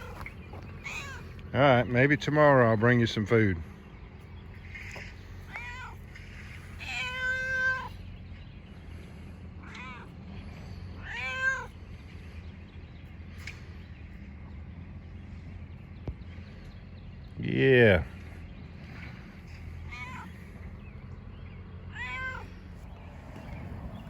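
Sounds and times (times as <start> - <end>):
cat meowing: 0.8 - 1.4, 5.5 - 6.0, 6.8 - 8.0, 9.6 - 10.1, 11.0 - 11.7, 19.9 - 20.4, 21.9 - 22.6.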